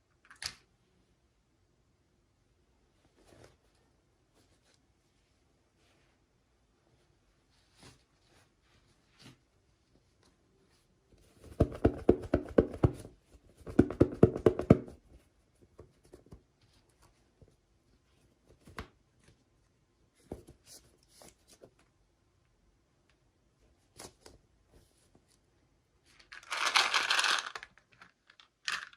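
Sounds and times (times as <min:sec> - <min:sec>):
packaging scraping and rattling: 0:26.2 - 0:28.9.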